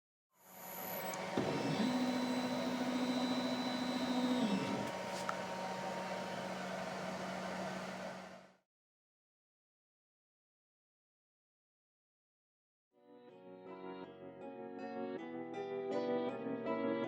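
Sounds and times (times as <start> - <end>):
cnc router motor hum: 0.4 - 8.6
higher motor tone: 0.6 - 8.5.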